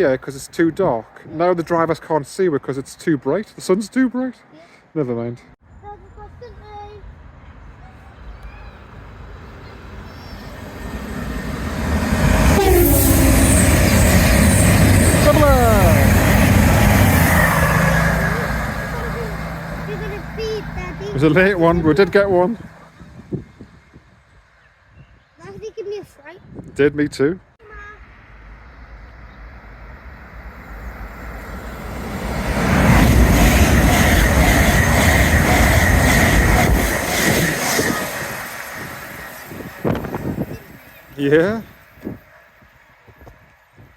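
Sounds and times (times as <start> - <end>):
train passing through: 6.3 - 24.9, 27.7 - 43.9.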